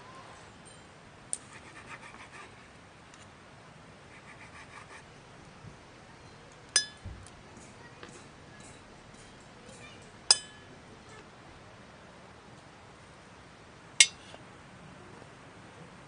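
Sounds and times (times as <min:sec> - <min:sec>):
sharp ringing clink: 0:06.8 - 0:07.0, 0:08.6 - 0:10.7, 0:14.0 - 0:14.2.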